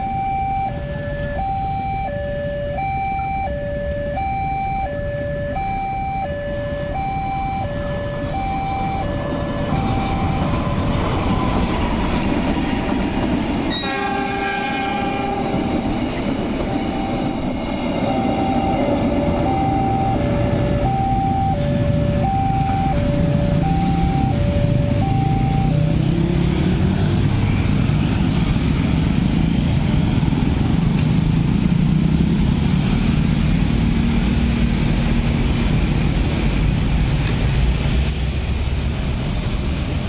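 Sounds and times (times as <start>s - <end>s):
level-crossing two-note alarm: 0.0s - 11.7s, 13.8s - 26.2s
train wheels rumbling on rails: 7.6s - 20.9s, 21.6s - 40.0s
train horn: 13.7s - 16.0s.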